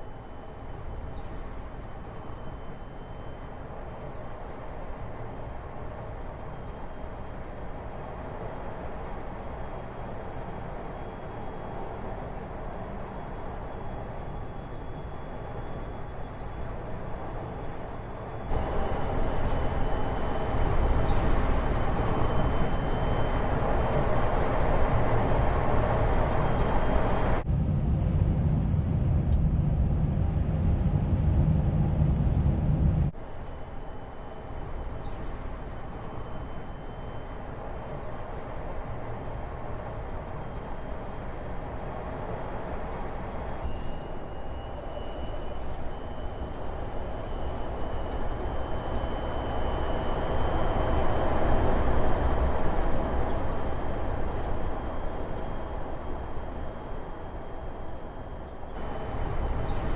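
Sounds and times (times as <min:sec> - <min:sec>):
vehicle rumble: 0:18.5 - 0:33.2.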